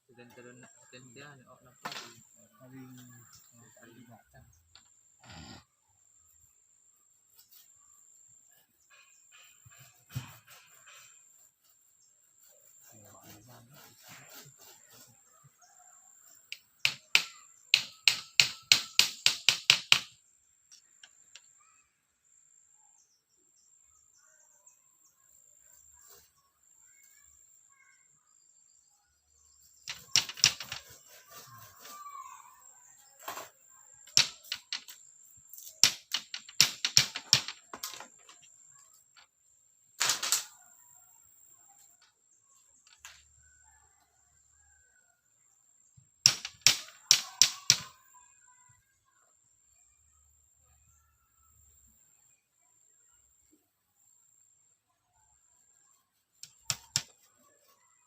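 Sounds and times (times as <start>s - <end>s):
tool knocking on bamboo: 16.8s - 20.1s, 29.9s - 30.9s, 35.8s - 38.3s.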